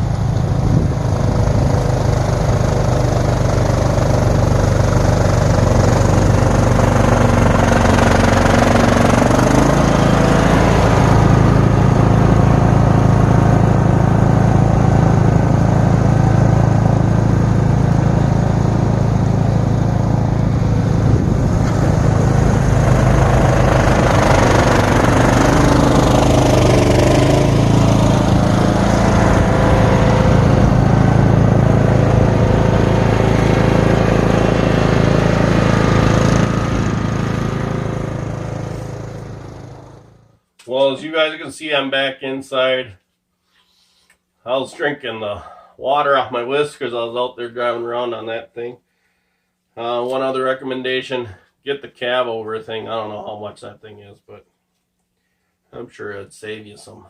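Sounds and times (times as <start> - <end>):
lawn tractor engine running: 0.0 - 40.4
snowblower blowing snow: 0.0 - 40.4.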